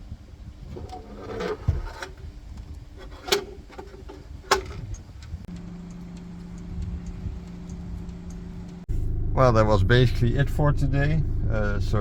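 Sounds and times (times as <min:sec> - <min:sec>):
steady low hum: 0:01.6 - 0:12.0
low rumble: 0:04.9 - 0:12.0.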